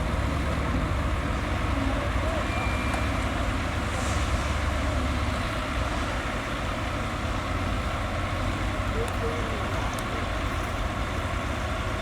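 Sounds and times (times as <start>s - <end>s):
diesel machinery engine rumble: 0.0s - 12.0s.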